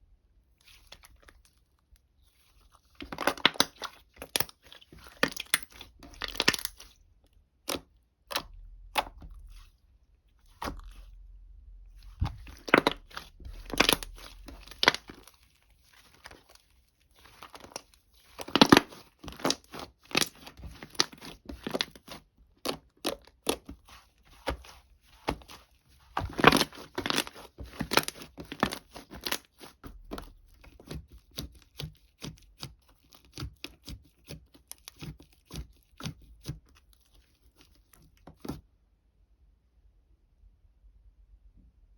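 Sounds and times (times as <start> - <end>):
crumpling and tearing crackle: 11.9 - 38.5.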